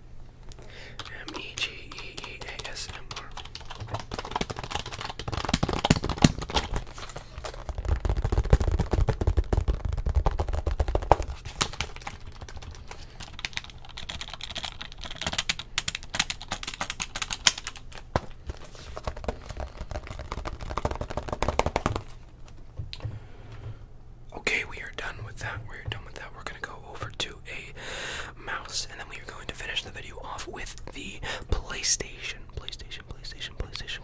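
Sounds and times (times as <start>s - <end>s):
rapid keyboard typing: 0.7s - 22.2s.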